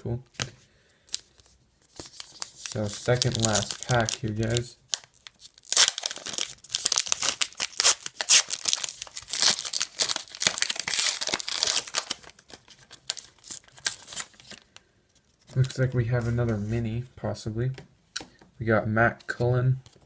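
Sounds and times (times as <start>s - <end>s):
foil wrapper tearing and crinkling: 1.9s - 14.6s.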